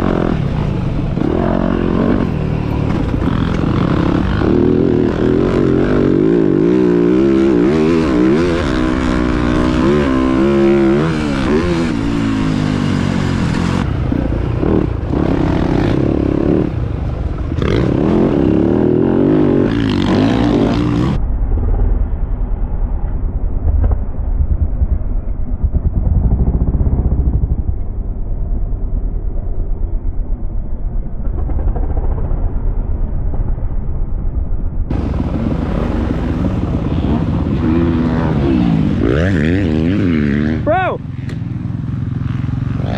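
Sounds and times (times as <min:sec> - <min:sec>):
dirt bike engines revving: 0:00.0 - 0:21.2, 0:34.9 - 0:42.9
muffled low rumble with thumps: 0:21.1 - 0:39.2.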